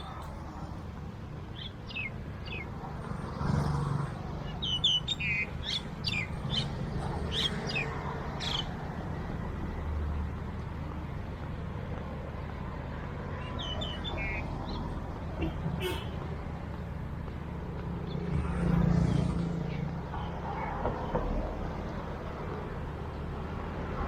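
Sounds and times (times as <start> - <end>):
birds chirping: 0.0 - 2.9, 4.2 - 9.0, 13.0 - 22.0
road traffic hum: 0.0 - 24.0.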